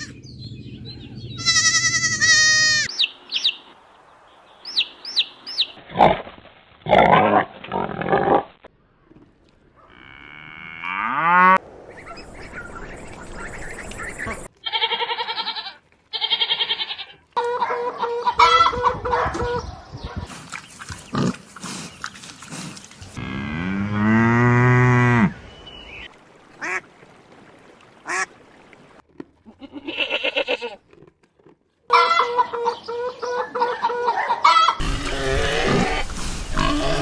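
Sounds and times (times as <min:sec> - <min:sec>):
waterfowl honking and quacking: 0:17.4 - 0:19.6, 0:31.9 - 0:37.0
cow mooing: 0:23.2 - 0:25.3, 0:34.8 - 0:37.0.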